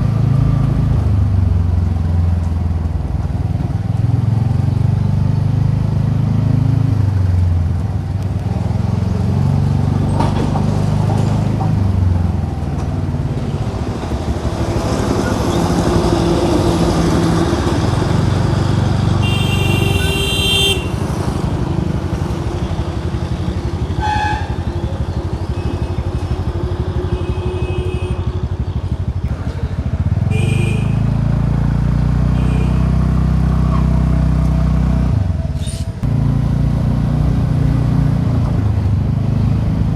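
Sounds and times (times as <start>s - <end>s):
vehicle horns honking: 19.2s - 21.0s, 24.0s - 24.7s, 27.1s - 28.5s, 30.2s - 31.0s, 32.3s - 32.9s
scooter engine running: 19.2s - 31.0s.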